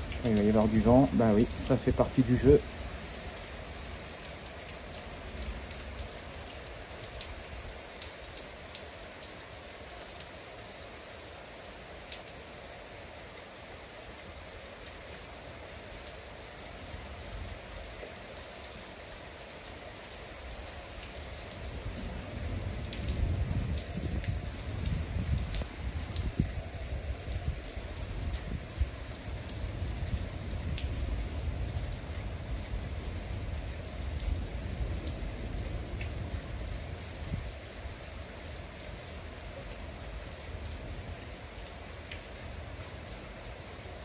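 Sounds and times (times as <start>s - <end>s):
raindrops ticking near microphone: 0.0s - 44.0s
steady rain falling: 0.0s - 44.0s
low thunder rumble: 21.9s - 26.6s.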